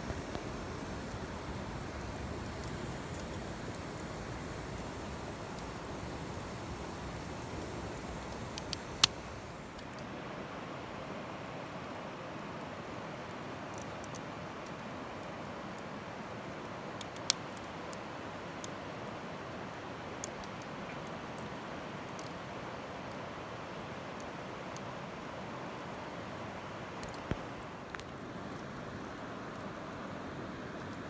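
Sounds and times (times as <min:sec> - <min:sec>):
sharp pop of fire: 0:00.0 - 0:09.9
fire crackles: 0:00.0 - 0:10.1, 0:16.6 - 0:31.0
campfire hissing: 0:00.0 - 0:10.2, 0:17.0 - 0:29.2.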